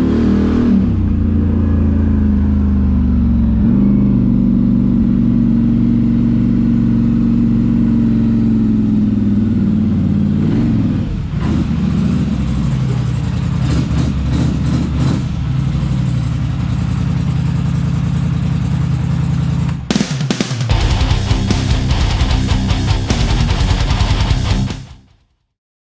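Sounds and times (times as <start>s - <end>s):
atv engine idling and revving: 0.0s - 20.0s.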